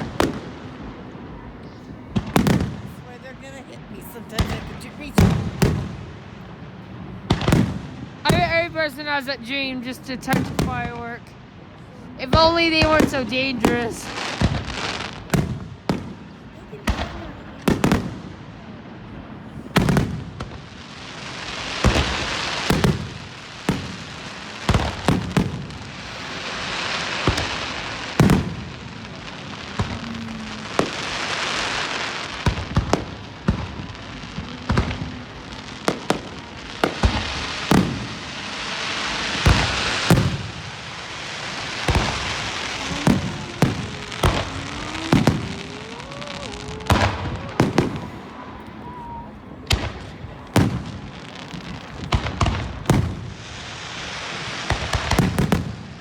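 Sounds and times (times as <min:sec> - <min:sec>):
crackling hiss of fireworks: 0:00.0 - 0:56.0
firework shells booming: 0:02.1 - 0:03.0, 0:07.2 - 0:09.1, 0:12.2 - 0:18.6, 0:19.7 - 0:20.7, 0:21.4 - 0:56.0.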